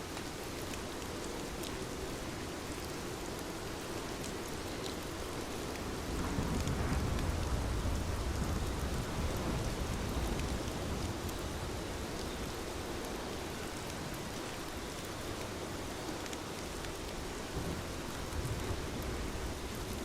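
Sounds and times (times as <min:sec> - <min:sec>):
heavy rain: 0:00.0 - 0:20.0
low thunder rumble: 0:05.8 - 0:12.6, 0:17.5 - 0:20.0.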